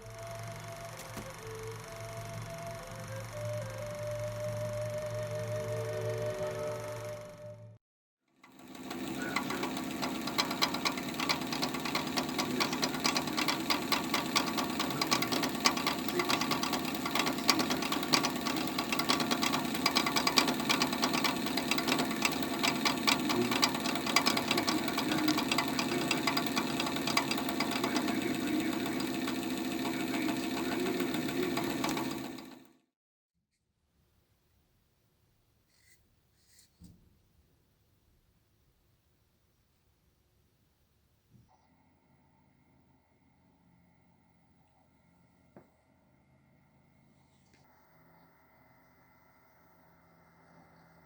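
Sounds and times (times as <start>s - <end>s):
computer fan humming: 8.4s - 32.7s
fan clicking rattle: 8.4s - 32.7s.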